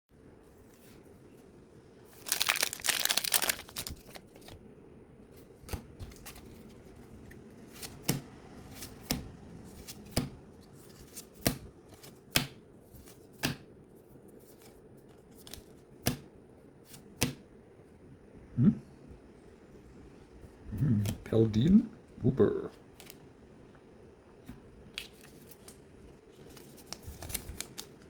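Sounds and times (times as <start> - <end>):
foil wrapper tearing: 2.2 - 4.5.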